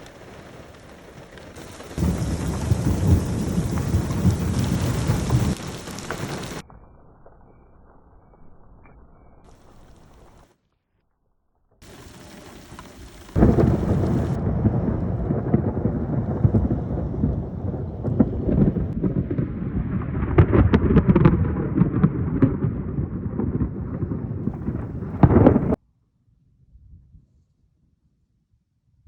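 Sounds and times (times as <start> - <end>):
heavy rain pouring: 0.0 - 6.6, 11.8 - 25.8
thunder rumbling: 0.0 - 10.5, 11.8 - 25.8.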